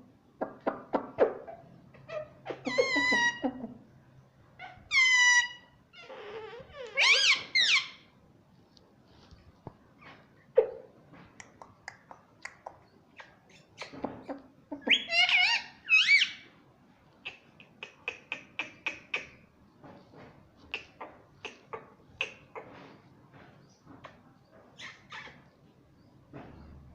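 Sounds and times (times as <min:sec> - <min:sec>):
loud wavering parrot calls: 0:01.9 - 0:03.5, 0:04.6 - 0:08.1, 0:14.8 - 0:16.4
parrot clicks and chatter: 0:11.4 - 0:14.4.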